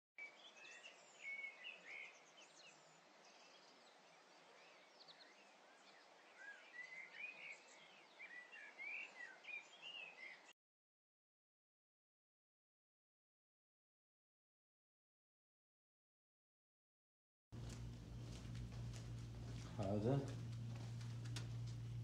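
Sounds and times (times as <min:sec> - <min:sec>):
birds chirping and whistling: 0:00.2 - 0:10.5.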